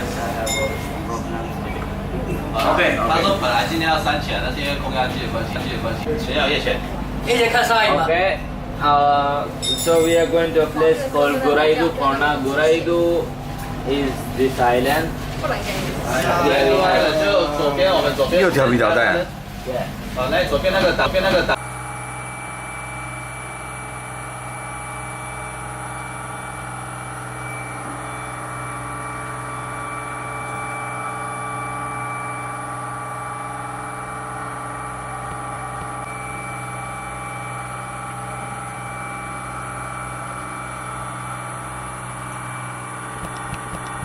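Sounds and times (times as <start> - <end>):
boat engine droning: 0.0 - 44.0.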